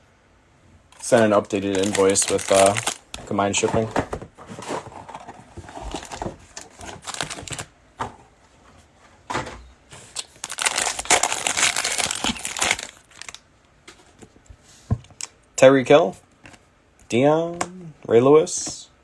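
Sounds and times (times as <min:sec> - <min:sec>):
plastic wrapper crinkling and tearing: 0:01.0 - 0:03.9, 0:05.8 - 0:07.7, 0:10.0 - 0:13.4.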